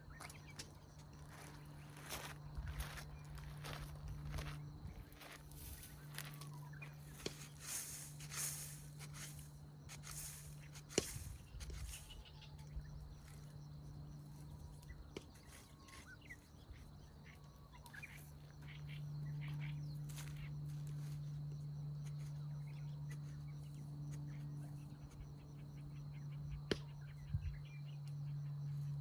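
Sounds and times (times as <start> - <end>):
faint bird chirps: 0.0 - 29.0
steady low hum: 0.0 - 29.0
hands rustling in soil: 0.5 - 16.6, 19.5 - 21.4.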